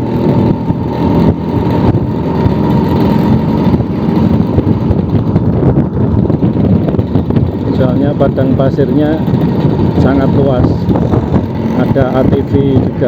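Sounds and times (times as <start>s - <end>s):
scooter two-stroke engine running: 0.0s - 13.0s.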